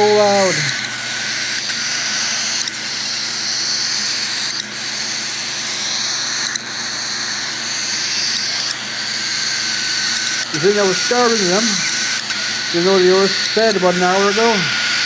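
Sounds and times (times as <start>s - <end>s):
chicks screeching raspily: 0.0s - 0.8s, 8.6s - 15.0s.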